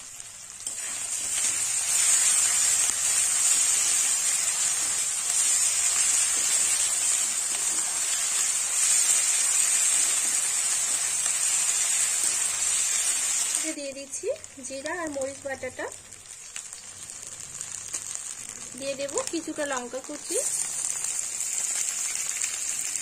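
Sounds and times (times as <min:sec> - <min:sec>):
food sizzling in spattering oil: 0:00.0 - 0:23.0
spatula stirring in a pan: 0:00.3 - 0:13.6.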